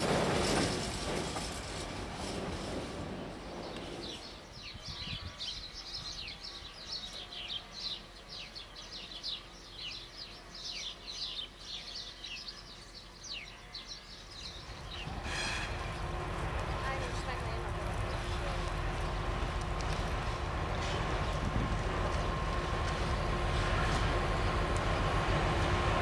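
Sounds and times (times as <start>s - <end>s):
small birds chirping: 3.2s - 19.4s
broad rumble: 14.6s - 26.0s.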